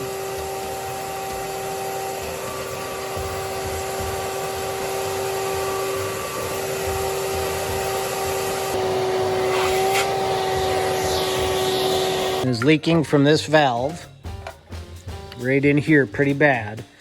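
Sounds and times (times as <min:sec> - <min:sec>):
shop vacuum whining: 0:00.0 - 0:12.7.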